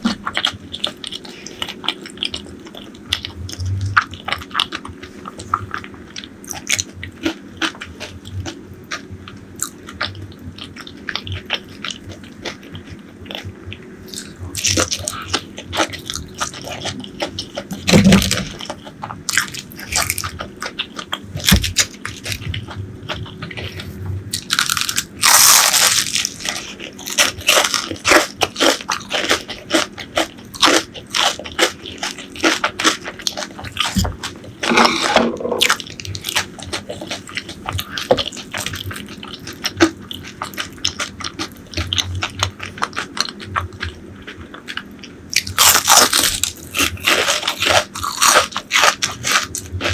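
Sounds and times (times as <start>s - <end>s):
crunchy bites and wet chewing: 0.0s - 49.9s.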